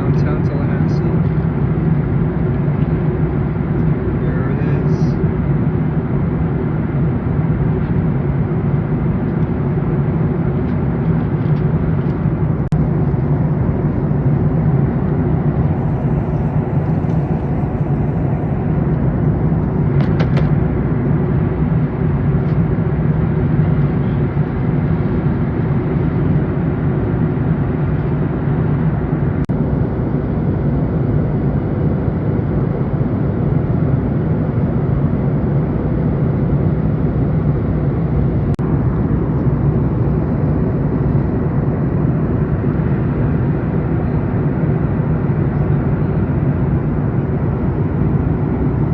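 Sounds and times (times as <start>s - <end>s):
airplane cabin engine drone: 0.0s - 48.9s
rushing airflow: 10.3s - 20.7s.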